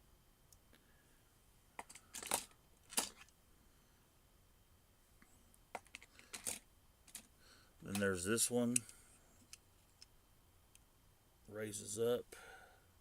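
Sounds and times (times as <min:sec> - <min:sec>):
toy cars clicking and clacking: 0:01.8 - 0:03.3, 0:05.8 - 0:07.3.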